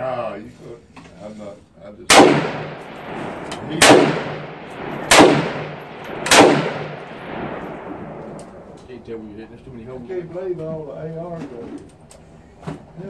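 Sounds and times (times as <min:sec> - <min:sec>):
gunshots with echo: 0:02.1 - 0:08.8.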